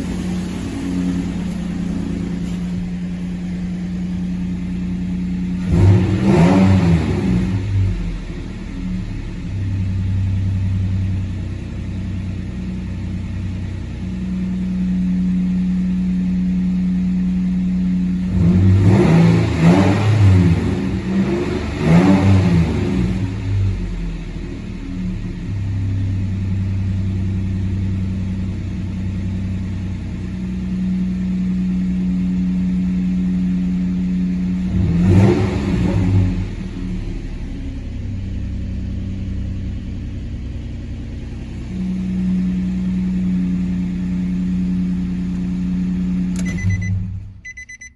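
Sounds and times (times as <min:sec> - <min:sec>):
truck engine idling and revving: 0:00.0 - 0:47.9.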